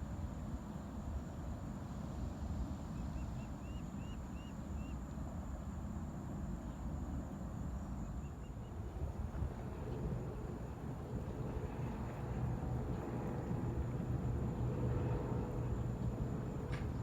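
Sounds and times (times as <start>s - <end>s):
wind buffeting microphone: 8.8s - 17.0s.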